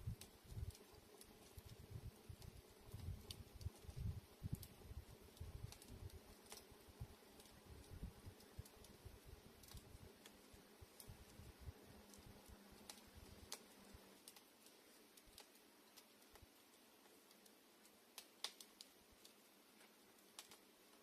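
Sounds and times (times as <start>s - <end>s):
campfire crackling: 0.0s - 21.0s
wood snapping pops: 18.2s - 18.9s.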